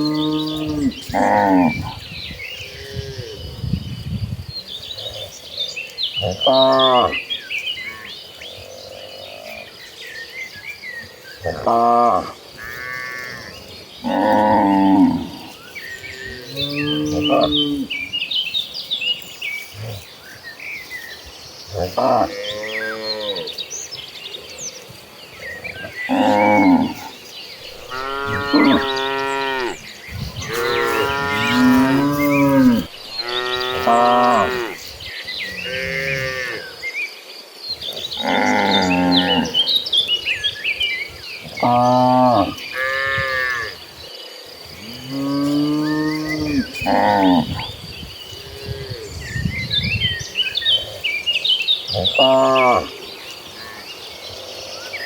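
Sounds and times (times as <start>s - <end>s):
cattle mooing: 27.7s - 29.8s, 30.4s - 34.8s.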